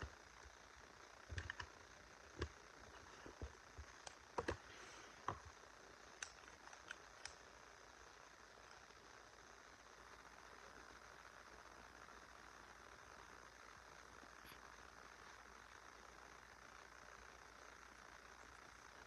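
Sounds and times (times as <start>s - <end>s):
faint steady hiss: 0.0s - 19.0s
small objects clicking and tapping: 1.3s - 1.7s, 3.2s - 4.6s.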